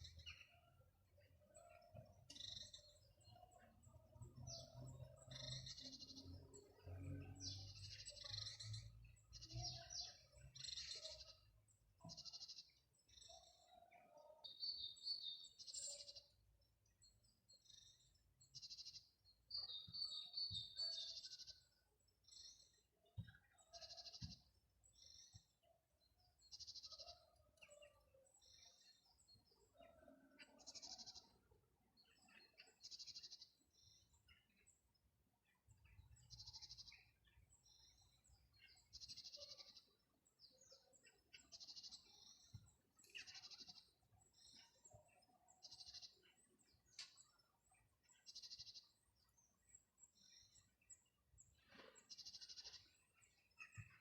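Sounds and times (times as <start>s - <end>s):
birds singing: 0.0s - 54.0s.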